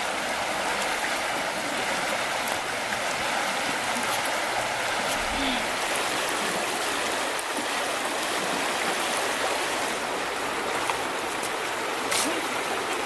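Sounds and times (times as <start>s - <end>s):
river water flowing: 0.0s - 13.0s
sharp splash: 12.1s - 12.6s.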